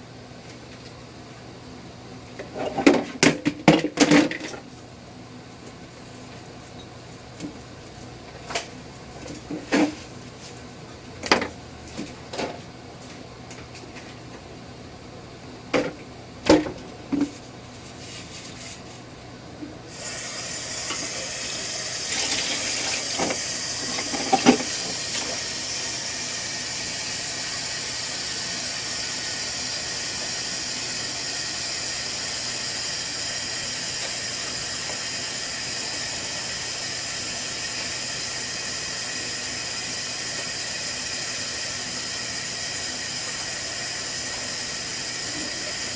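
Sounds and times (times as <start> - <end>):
water running: 19.9 - 45.9.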